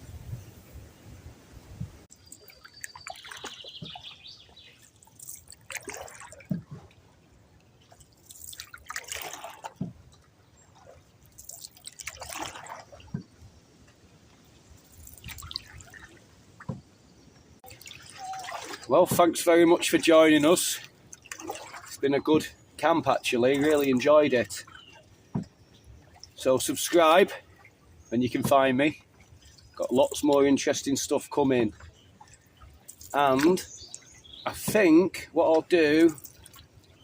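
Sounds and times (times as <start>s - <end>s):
water dripping and splashing: 2.0s - 16.9s, 17.6s - 37.0s.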